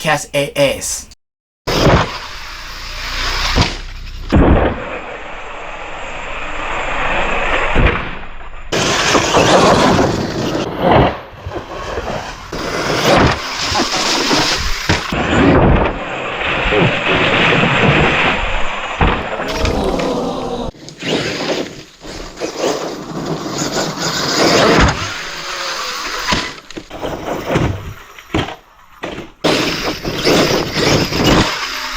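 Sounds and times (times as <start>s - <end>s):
rough tyre and ground noise: 1.7s - 15.4s.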